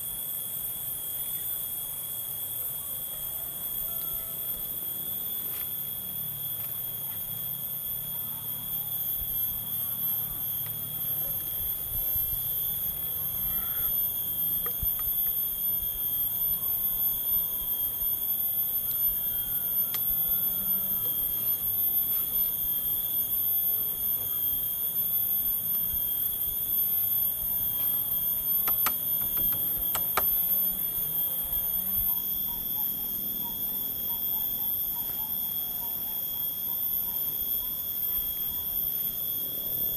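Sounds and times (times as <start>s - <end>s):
forest insects droning: 0.0s - 39.9s
faint chirps: 0.7s - 39.9s
sharp knocks: 28.6s - 30.3s.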